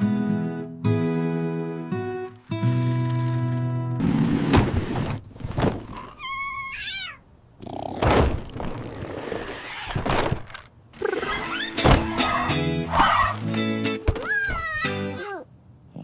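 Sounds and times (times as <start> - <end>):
rustling clatter: 8.3 - 10.7.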